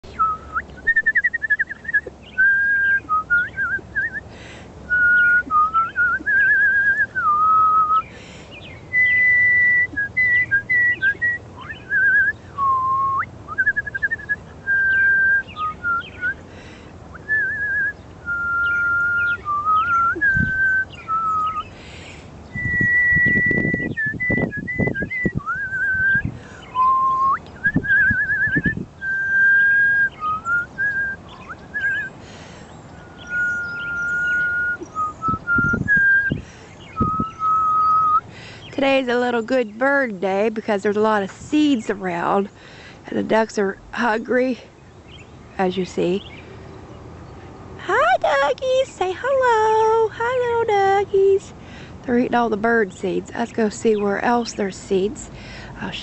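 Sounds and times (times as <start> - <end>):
person whistling bird calls: 0.1 - 4.2, 4.9 - 8.1, 8.9 - 16.4, 17.1 - 21.7, 22.5 - 32.1, 32.9 - 38.3.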